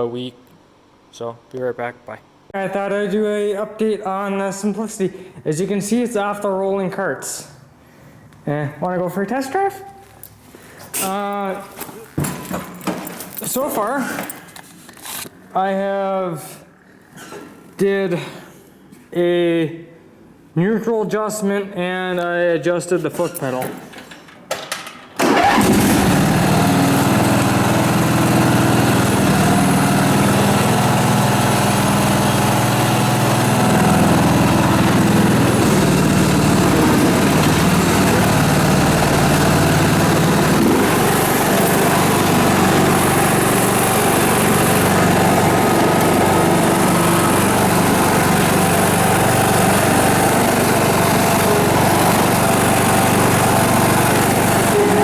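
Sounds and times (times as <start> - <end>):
garden tractor engine running: 25.2 - 55.0.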